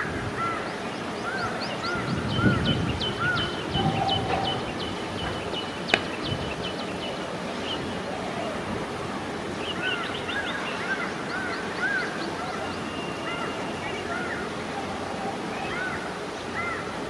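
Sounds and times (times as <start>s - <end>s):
outdoor background hiss: 0.0s - 17.0s
birds chirping: 0.6s - 8.7s.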